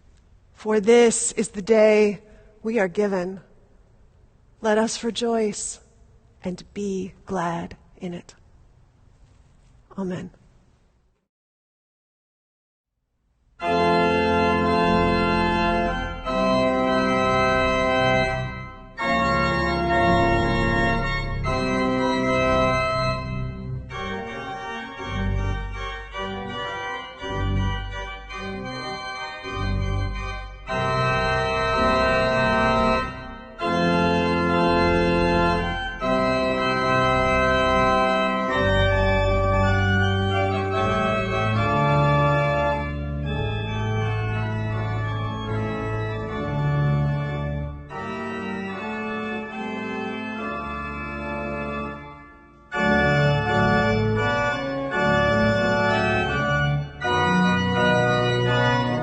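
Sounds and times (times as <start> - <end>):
organ playing full chords: 13.6 - 59.0.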